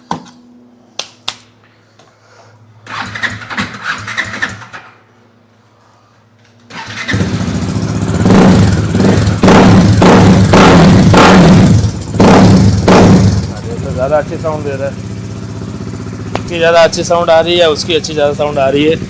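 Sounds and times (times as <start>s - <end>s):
motorcycle engine revving: 2.8s - 5.0s, 6.7s - 19.0s
motorcycle engine starting: 2.8s - 5.2s, 6.6s - 19.0s.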